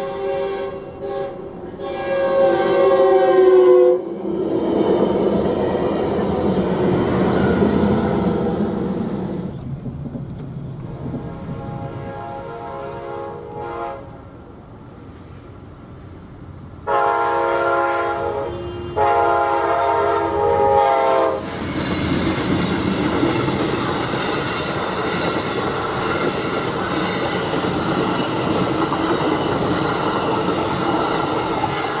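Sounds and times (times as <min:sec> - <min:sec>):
train horn blasts: 0:00.0 - 0:04.2, 0:10.8 - 0:14.2, 0:16.8 - 0:21.5
train rumbling past: 0:00.0 - 0:32.0
wheels clattering over rail joints: 0:21.4 - 0:32.0.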